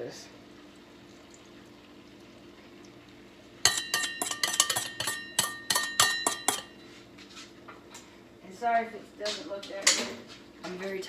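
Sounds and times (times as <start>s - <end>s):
metal utensil clinking on pan: 3.6s - 6.8s.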